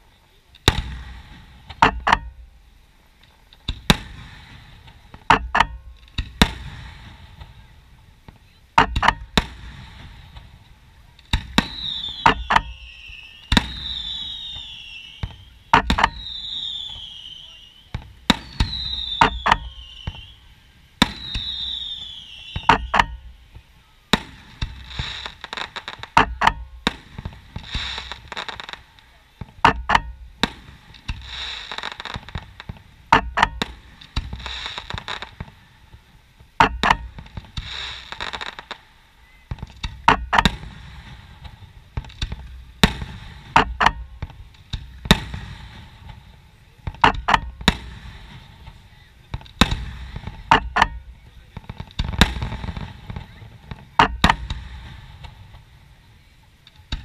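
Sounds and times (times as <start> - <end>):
fireworks bangs: 0.0 - 57.0
hiss: 6.0 - 57.0
falling firework whistle: 11.4 - 25.7.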